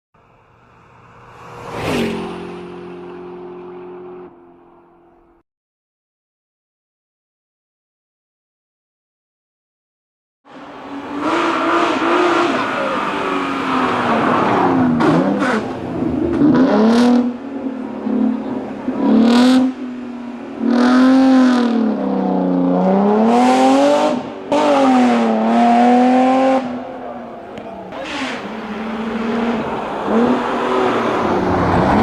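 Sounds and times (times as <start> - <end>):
racing engine revving hard: 10.6 - 17.4, 20.6 - 32.0.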